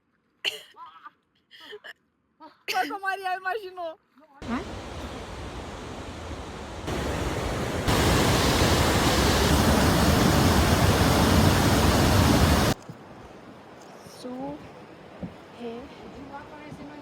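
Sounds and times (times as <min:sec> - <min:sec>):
steady rushing noise: 0:04.4 - 0:12.8.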